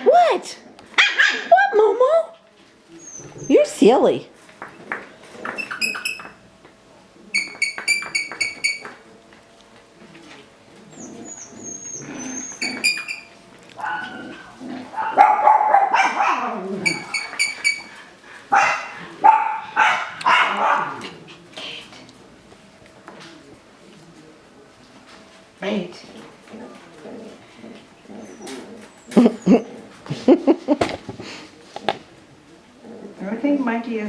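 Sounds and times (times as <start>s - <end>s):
puppies barking and yapping: 0.8s - 3.8s, 4.5s - 6.5s, 7.3s - 9.1s, 10.8s - 21.6s, 26.2s - 30.3s
short high squeaks: 5.4s - 6.4s, 7.4s - 9.0s, 11.0s - 13.4s, 16.8s - 18.0s.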